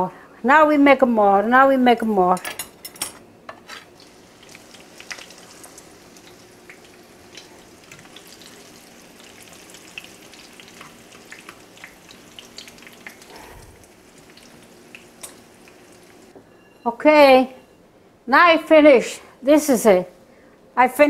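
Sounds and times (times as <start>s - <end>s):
battered food frying in oil: 3.8s - 16.4s.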